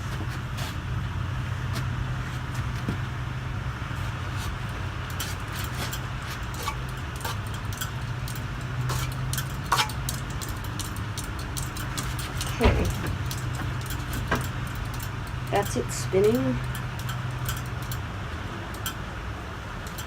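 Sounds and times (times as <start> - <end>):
ceiling fan motor hum: 0.0 - 20.0
light clicks and ticks: 5.1 - 18.1, 18.7 - 19.0, 19.8 - 20.0.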